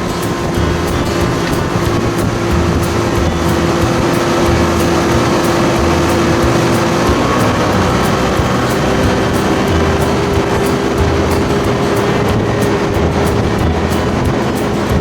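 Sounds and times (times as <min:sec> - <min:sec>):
outboard motor running: 0:00.0 - 0:15.0
water and wind noise: 0:00.0 - 0:15.0.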